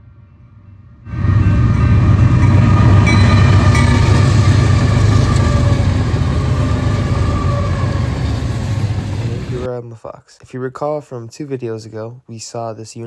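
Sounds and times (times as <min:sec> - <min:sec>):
freight train wheels rumbling: 0:01.1 - 0:09.7.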